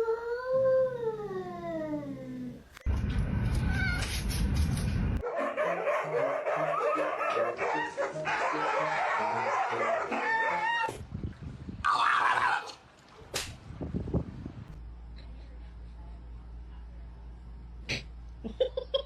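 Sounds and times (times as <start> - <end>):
dog barking and yipping: 5.2 - 10.9
background music: 6.0 - 10.8.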